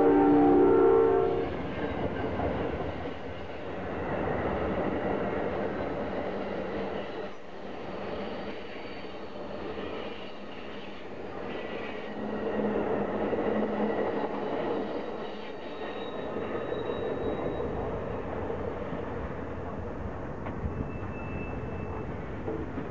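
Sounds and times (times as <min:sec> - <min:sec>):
freight train rumble and clatter: 0:00.0 - 0:22.9
passenger train wheels rumbling: 0:00.0 - 0:22.9
faint wheel squeals: 0:14.1 - 0:18.0, 0:20.5 - 0:22.5.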